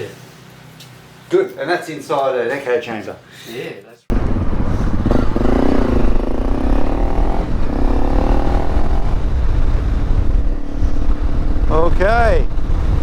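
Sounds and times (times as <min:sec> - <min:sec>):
motorcycle engine rumbling: 0:04.1 - 0:13.0.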